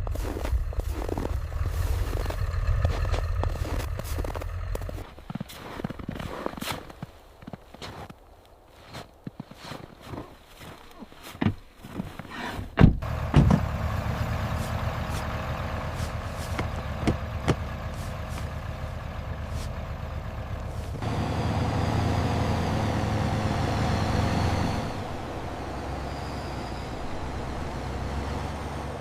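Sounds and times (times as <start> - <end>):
vehicle engine running: 0.0 - 6.6, 13.0 - 29.0.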